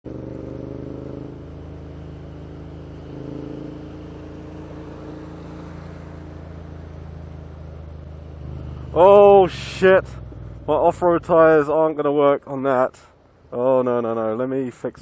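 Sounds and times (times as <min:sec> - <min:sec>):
motorcycle engine running: 0:00.0 - 0:11.3.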